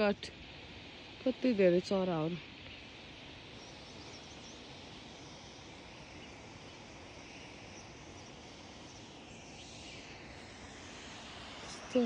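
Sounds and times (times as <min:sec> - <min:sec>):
outdoor ambience hiss: 0:00.0 - 0:12.0
small birds chirping: 0:01.2 - 0:10.4.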